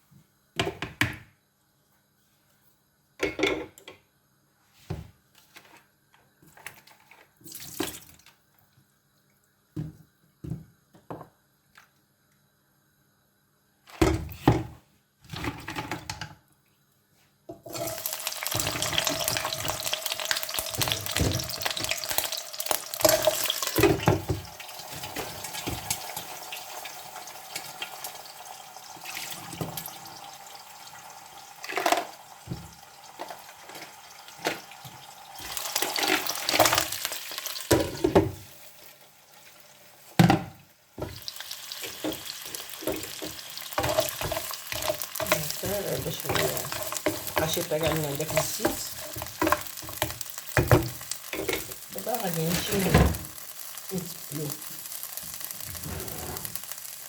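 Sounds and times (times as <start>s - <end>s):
food sizzling in hot oil: 17.6s - 40.2s, 41.0s - 57.0s.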